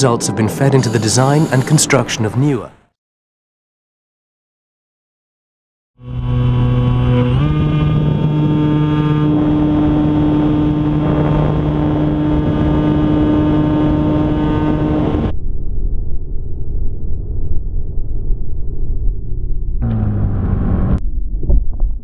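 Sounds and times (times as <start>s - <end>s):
loud engine drone: 0.0s - 2.7s, 6.0s - 15.3s, 19.8s - 21.0s
low rumble: 6.0s - 22.0s.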